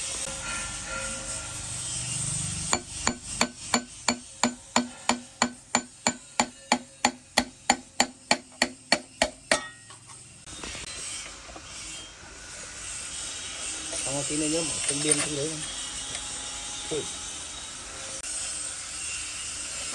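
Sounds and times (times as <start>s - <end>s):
hammer striking metal: 0.2s - 10.0s.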